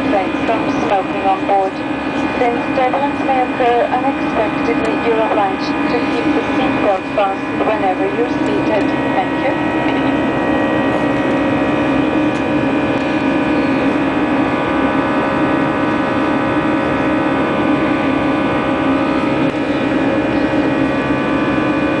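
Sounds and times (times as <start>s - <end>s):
steady tones: 0.0s - 13.8s
airliner engine drone: 0.0s - 22.0s.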